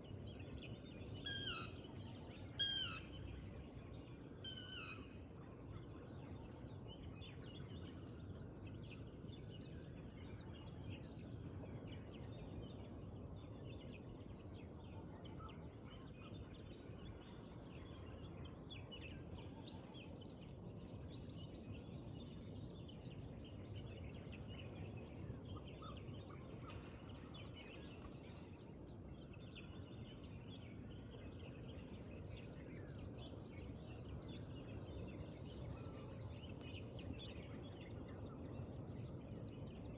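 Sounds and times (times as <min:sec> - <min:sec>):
short bird chirps: 0:01.3 - 0:01.8, 0:02.6 - 0:03.2, 0:04.5 - 0:05.0.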